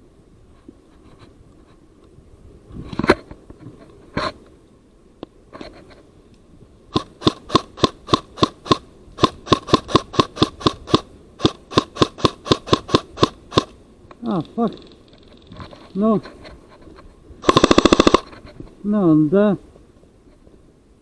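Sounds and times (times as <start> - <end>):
quiet rustling: 0.3 - 20.8
airsoft guns firing rapidly: 7.0 - 13.7, 17.4 - 18.3.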